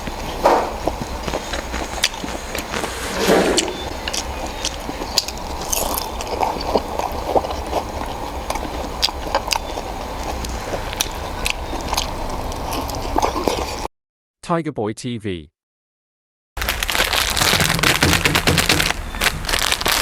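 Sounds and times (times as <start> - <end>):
steady low hum: 0.0 - 13.2
chewing noodles: 0.0 - 13.9, 16.6 - 20.0.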